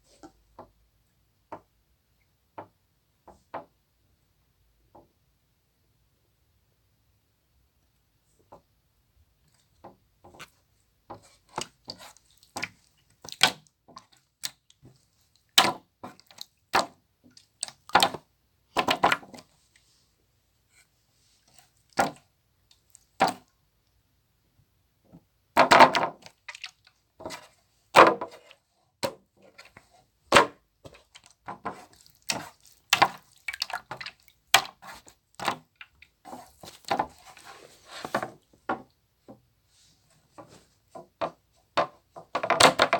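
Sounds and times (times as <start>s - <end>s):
slime squishes: 9.5s - 19.9s, 26.1s - 27.6s, 29.1s - 38.4s.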